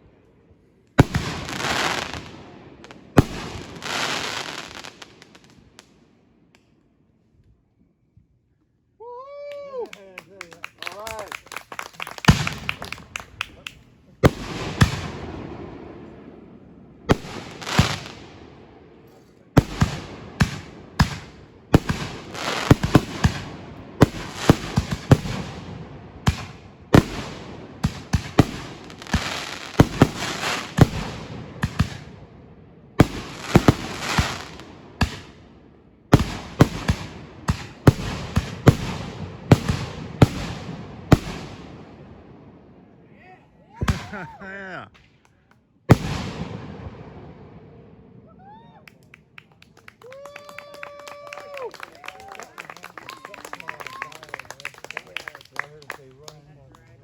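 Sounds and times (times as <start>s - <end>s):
fireworks bangs: 1.0s - 6.0s, 11.1s - 42.7s, 43.7s - 45.2s, 45.9s - 48.6s.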